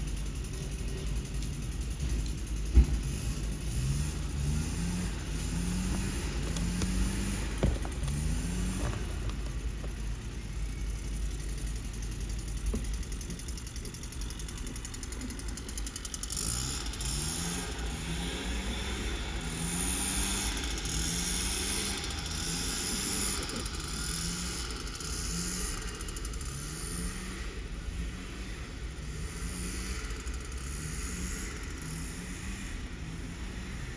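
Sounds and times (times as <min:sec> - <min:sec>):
diesel truck engine idling: 0:00.0 - 0:26.7.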